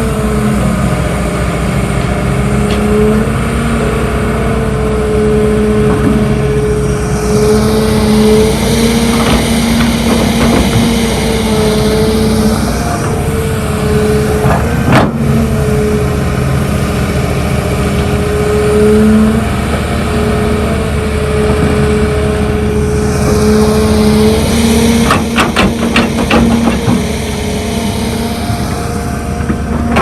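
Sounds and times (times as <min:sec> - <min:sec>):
heavy machinery diesel engine: 0:00.0 - 0:30.0
knocks and clanks: 0:09.0 - 0:11.2, 0:14.4 - 0:15.4, 0:21.4 - 0:22.0, 0:24.8 - 0:27.3, 0:29.4 - 0:30.0.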